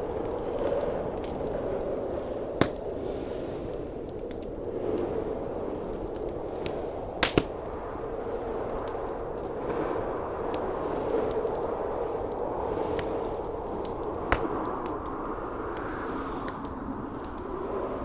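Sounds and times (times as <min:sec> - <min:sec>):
blizzard wind howling: 0:00.0 - 0:18.0
crackling log fire: 0:00.0 - 0:18.0
sharp fire pops: 0:02.5 - 0:03.2, 0:06.1 - 0:07.8, 0:12.3 - 0:15.3.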